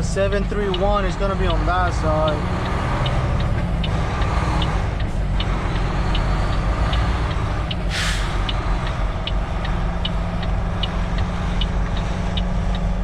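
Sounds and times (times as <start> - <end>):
diesel truck engine running: 0.0 - 13.0
high ticking: 0.1 - 13.0
air brake hiss: 7.9 - 8.5.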